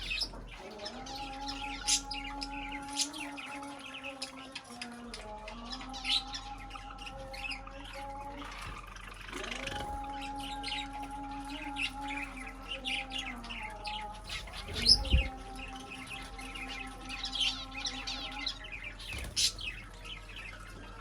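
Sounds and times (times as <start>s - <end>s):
small birds chirping: 0.0s - 21.0s
steady low hum: 5.2s - 20.6s.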